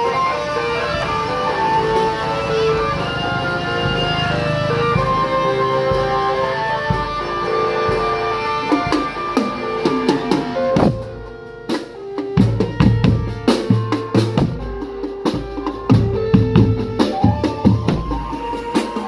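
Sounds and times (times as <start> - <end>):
drum band music: 0.0 - 19.0
heavy bass drum hits: 9.9 - 11.3.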